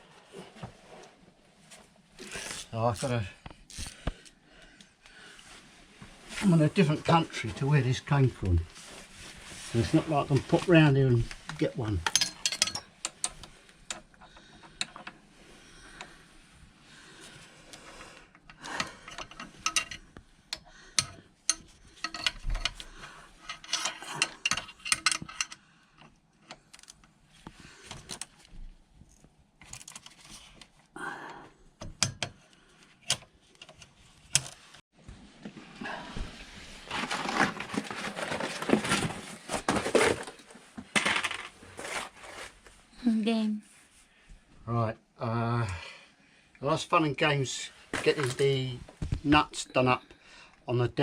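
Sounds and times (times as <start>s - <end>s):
metal hand tools clinking: 12.0s - 12.9s.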